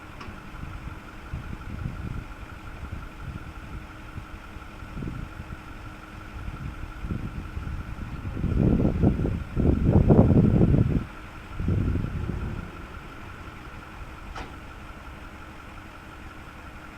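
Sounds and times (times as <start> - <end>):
truck engine idling: 0.0 - 16.9.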